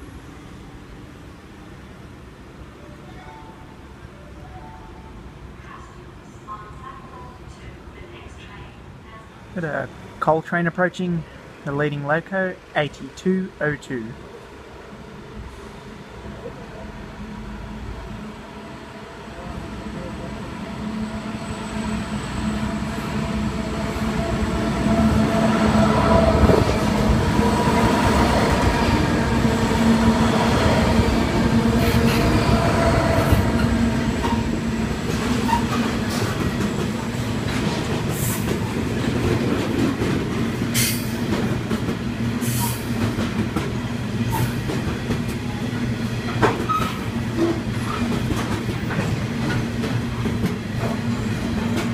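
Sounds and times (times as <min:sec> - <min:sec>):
train wagons clickety-clack: 0:33.2 - 0:51.9.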